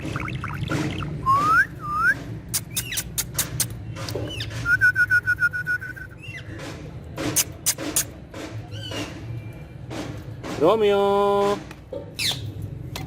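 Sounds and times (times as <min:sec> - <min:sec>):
parrot whistling: 0:01.2 - 0:03.1, 0:04.3 - 0:06.4
sharp clicks: 0:02.5 - 0:04.2.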